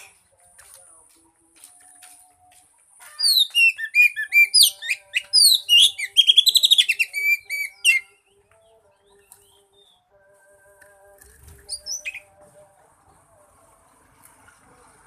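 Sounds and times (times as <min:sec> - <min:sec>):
bird singing whistles and trills: 0:03.2 - 0:10.1, 0:11.5 - 0:12.4.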